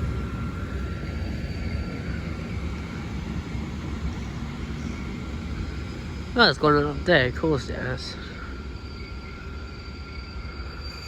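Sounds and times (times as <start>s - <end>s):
locomotive low rumble: 0.0s - 7.0s.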